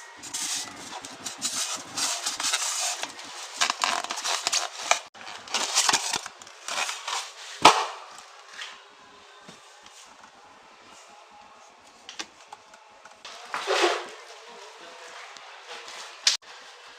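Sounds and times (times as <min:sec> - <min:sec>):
handling rubbing and scraping: 0:00.0 - 0:07.7.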